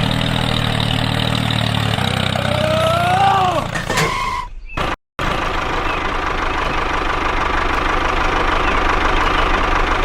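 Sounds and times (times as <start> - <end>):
small engine idling: 5.2 - 10.0.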